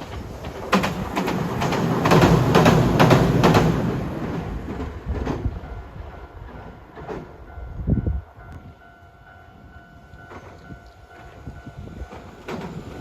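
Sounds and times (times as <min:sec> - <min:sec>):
wheels clacking over rail joints: 0:00.0 - 0:07.6, 0:12.0 - 0:13.0
train passing: 0:00.0 - 0:13.0.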